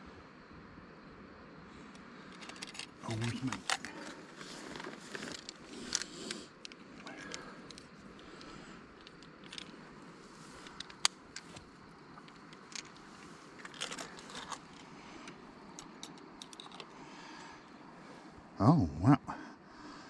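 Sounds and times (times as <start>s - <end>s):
clicks and rattles of gear: 1.9s - 17.0s.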